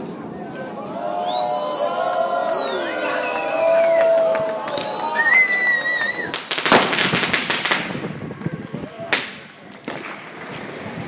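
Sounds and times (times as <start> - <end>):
fireworks crackling bangs: 4.1 - 11.0.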